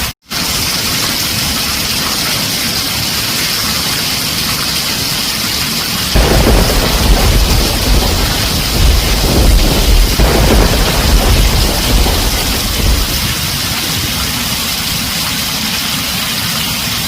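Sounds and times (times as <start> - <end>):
rain on a tin roof: 0.0 - 17.0
thunder rumbling: 6.1 - 15.5.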